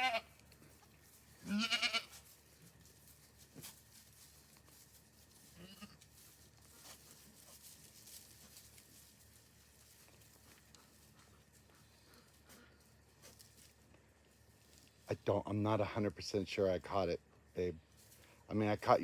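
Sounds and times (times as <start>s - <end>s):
goat bleating: 0.0s - 0.4s, 1.4s - 2.2s, 5.5s - 6.0s
faint rustling: 0.4s - 15.1s.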